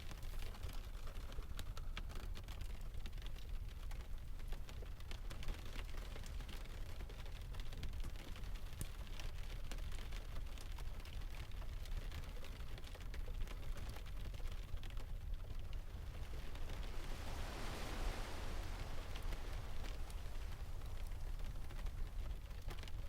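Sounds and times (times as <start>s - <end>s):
fire crackling: 0.1s - 23.0s
low rumble of surf: 5.2s - 23.0s
rain hissing: 14.9s - 23.0s.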